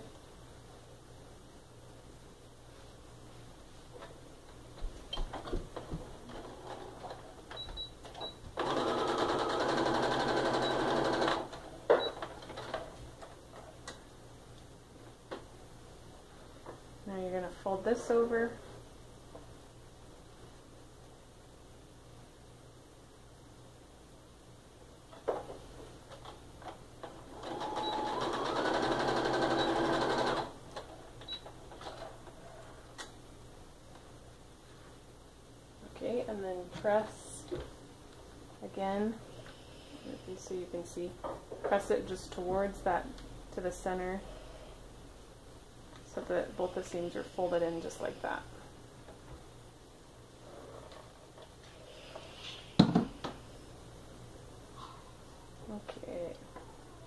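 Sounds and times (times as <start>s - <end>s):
sewing machine stitching: 8.6s - 11.6s, 27.3s - 30.6s.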